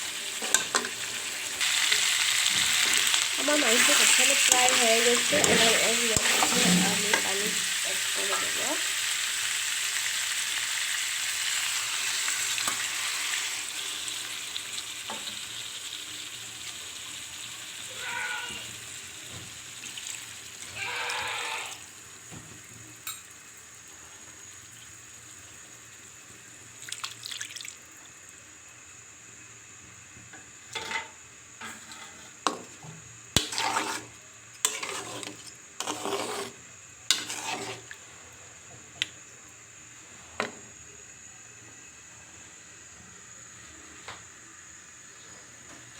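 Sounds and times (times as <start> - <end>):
chicken sizzling in a pan: 0.0 - 45.9
spoon scraping and clinking on pot: 4.7 - 7.6, 33.4 - 37.9.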